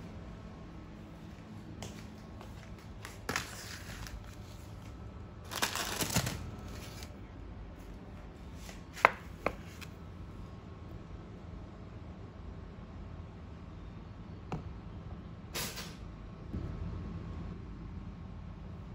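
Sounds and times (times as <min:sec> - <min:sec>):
rustling and scraping: 0:01.8 - 0:07.2, 0:07.8 - 0:09.9.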